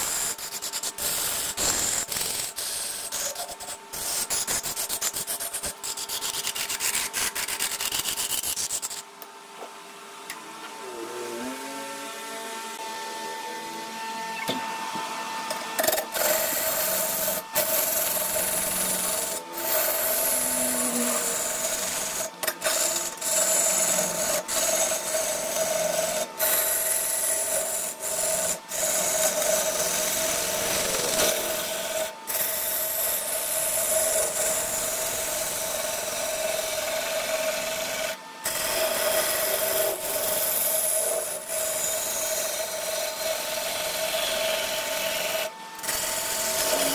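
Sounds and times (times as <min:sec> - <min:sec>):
tool scraping spinning wood: 0:00.0 - 0:09.2, 0:15.3 - 0:46.9
lathe humming: 0:10.0 - 0:46.9.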